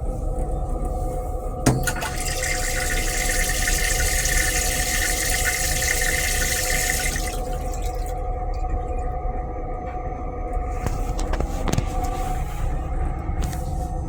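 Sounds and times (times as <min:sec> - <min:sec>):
railcar low rumble: 0:00.0 - 0:03.1, 0:07.2 - 0:14.0
water running: 0:00.2 - 0:09.2.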